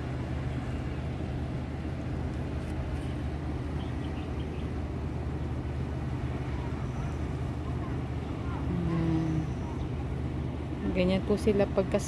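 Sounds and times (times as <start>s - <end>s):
low mechanical hum and rumble: 0.0s - 12.0s.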